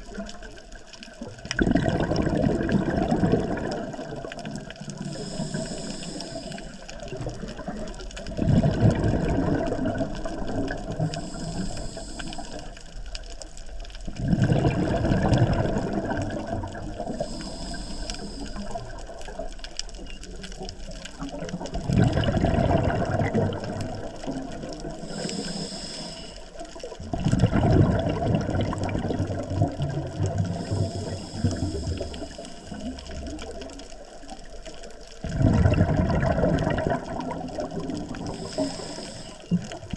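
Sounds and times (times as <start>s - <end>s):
exhaled bubbles gushing: 0.0s - 13.2s, 13.8s - 39.9s
regulator inhale hiss: 5.0s - 7.2s, 10.3s - 13.0s, 16.9s - 19.2s, 24.0s - 26.9s, 30.3s - 33.4s, 38.1s - 39.8s.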